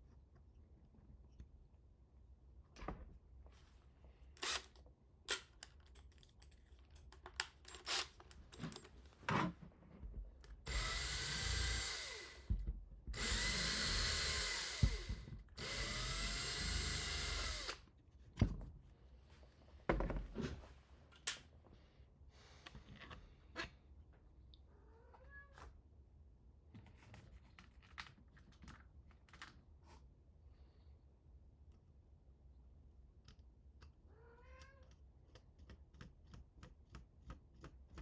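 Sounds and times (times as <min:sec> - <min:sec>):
electric drill running: 0:04.4 - 0:04.6, 0:10.7 - 0:12.5, 0:13.2 - 0:17.8
parts and tools clicking: 0:04.4 - 0:08.9.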